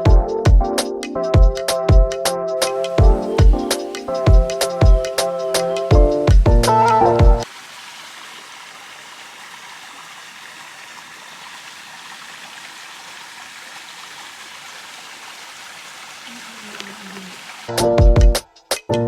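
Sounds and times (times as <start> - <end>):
background music: 0.0 - 7.4, 17.7 - 19.0
stream water rushing: 7.4 - 17.8.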